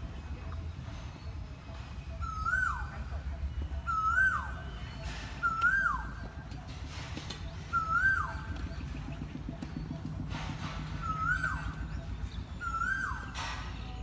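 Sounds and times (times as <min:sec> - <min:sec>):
bird whistled call: 0:02.1 - 0:06.5, 0:07.4 - 0:14.0.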